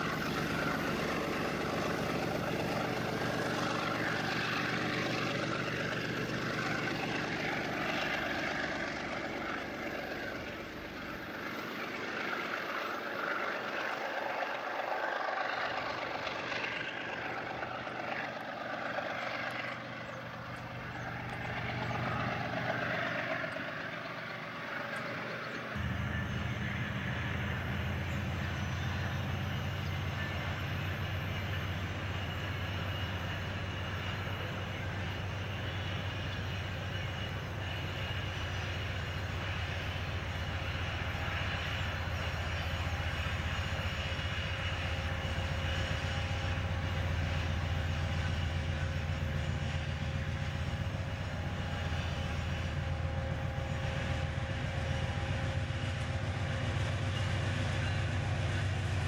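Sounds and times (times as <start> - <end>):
diesel locomotive rumble: 0.0 - 59.0.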